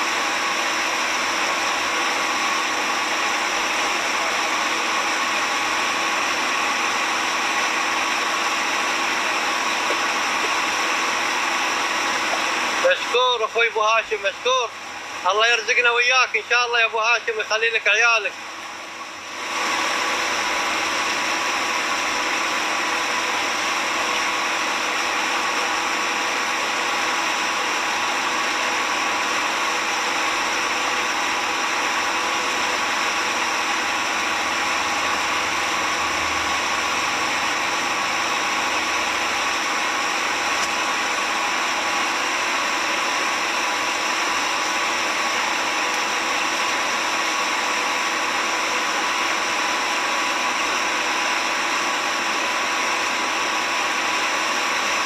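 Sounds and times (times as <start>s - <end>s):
motorboat engine running: 0.0s - 13.1s.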